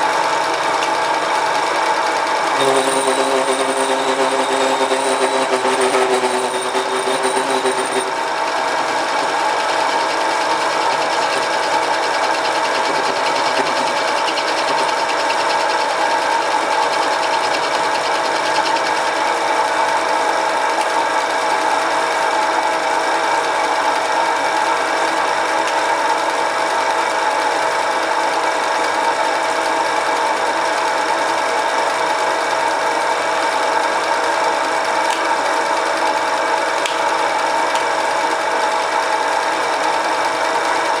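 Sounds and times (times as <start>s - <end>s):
lathe motor whining: 0.1s - 21.5s.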